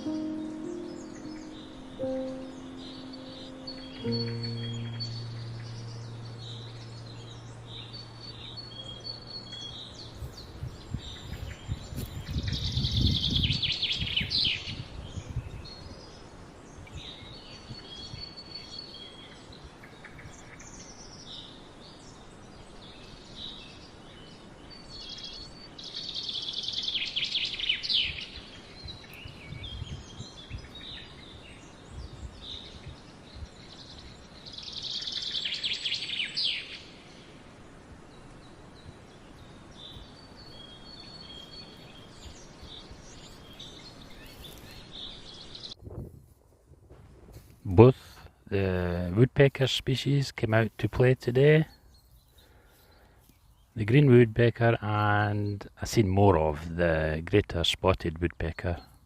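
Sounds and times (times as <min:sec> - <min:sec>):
loud bird song phrase: 0:00.0 - 0:45.8, 0:47.6 - 0:59.0
small birds singing and calling: 0:00.0 - 0:46.4, 0:47.3 - 0:59.0.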